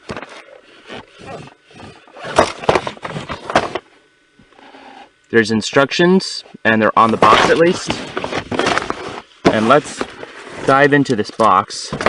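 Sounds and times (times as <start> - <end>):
cardboard box rubbing and scraping: 0.1 - 3.8, 7.2 - 10.9.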